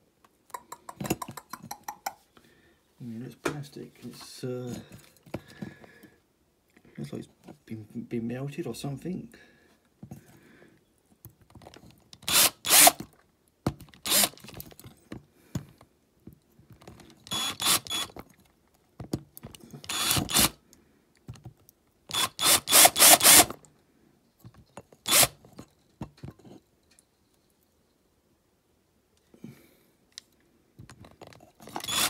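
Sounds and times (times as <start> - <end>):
small power drill: 12.2 - 13.1, 14.0 - 14.5, 17.2 - 18.2, 19.8 - 20.6, 22.1 - 23.6, 25.1 - 25.4, 31.6 - 32.0.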